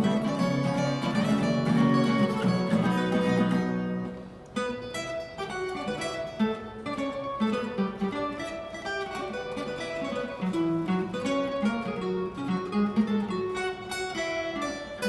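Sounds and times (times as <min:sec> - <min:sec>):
acoustic guitars playing jazz: 0:00.0 - 0:15.0.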